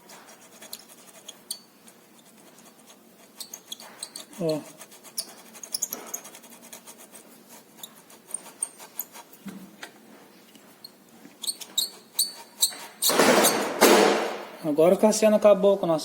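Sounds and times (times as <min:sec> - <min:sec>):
steering column bearing squeaking: 0:00.7 - 0:01.8, 0:03.2 - 0:06.3, 0:10.8 - 0:13.7.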